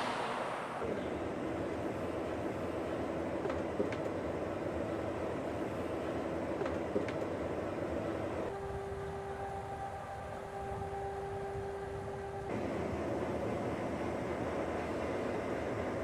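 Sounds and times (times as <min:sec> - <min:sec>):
vehicle engine rumble and hum: 0:00.0 - 0:16.0.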